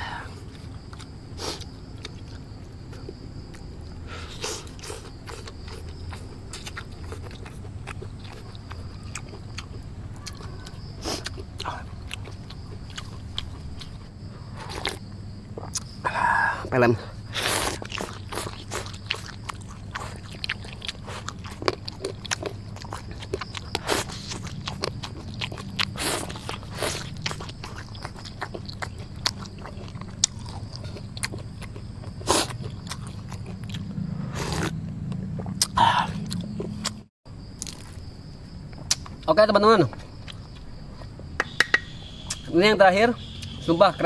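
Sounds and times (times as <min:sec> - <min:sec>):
steady low hum: 0:00.0 - 0:44.0
person chewing and slurping: 0:04.2 - 0:15.0, 0:17.3 - 0:37.0.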